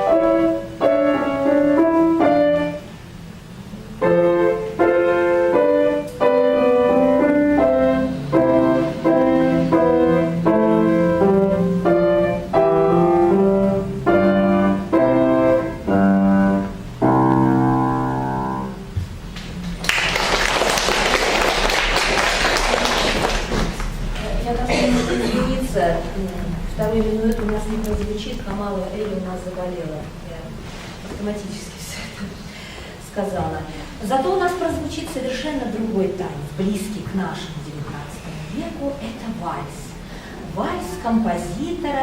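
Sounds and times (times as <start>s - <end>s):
piano chords: 0.0s - 19.9s
audience applauding: 19.6s - 24.2s.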